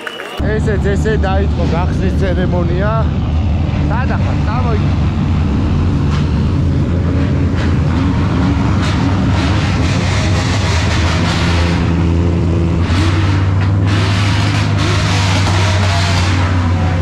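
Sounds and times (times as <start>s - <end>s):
car engines idling: 0.4s - 17.0s.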